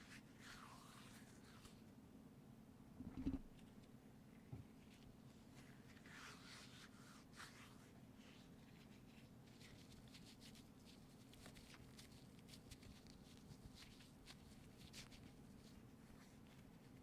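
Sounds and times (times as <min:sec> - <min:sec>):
scratching and rubbing: 0:03.0 - 0:03.5.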